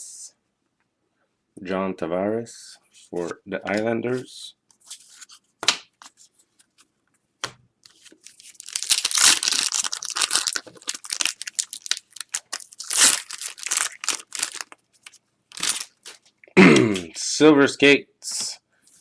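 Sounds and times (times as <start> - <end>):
foil wrapper tearing and crinkling: 7.9 - 16.2.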